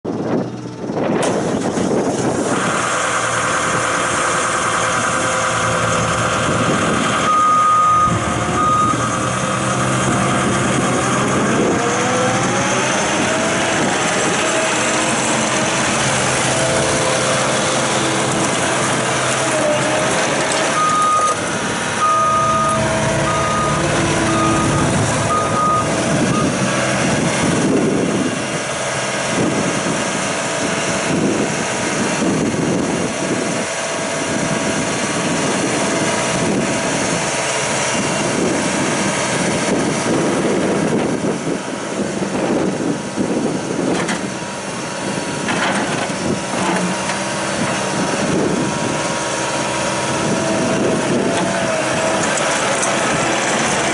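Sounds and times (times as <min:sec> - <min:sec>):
loader diesel engine running: 0:00.0 - 0:53.9
reversing alarm beeps: 0:07.2 - 0:09.2, 0:20.7 - 0:21.4, 0:22.0 - 0:26.7.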